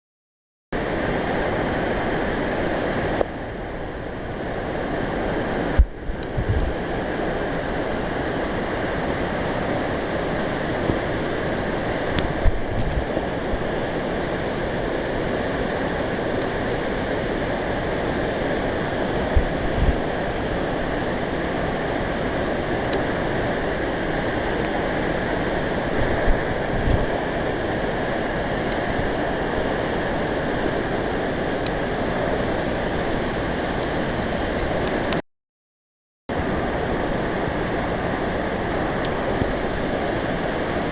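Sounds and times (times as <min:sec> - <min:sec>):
waterfall rushing: 0:00.8 - 0:35.2, 0:36.3 - 0:40.9
low thumps on microphone: 0:05.8 - 0:06.8, 0:12.2 - 0:13.7.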